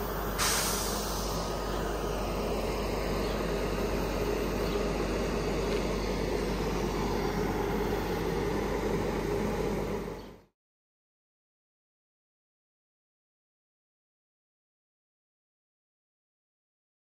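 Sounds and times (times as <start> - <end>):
train rumble: 0.0 - 10.5.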